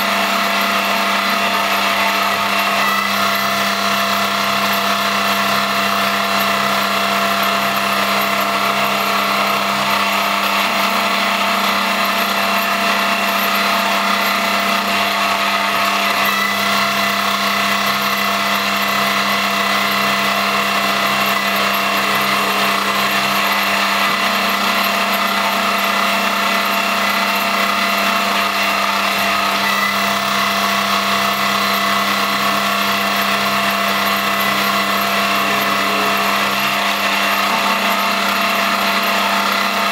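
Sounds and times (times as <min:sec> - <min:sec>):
lathe motor hum and whine: 0:00.0 - 0:39.9.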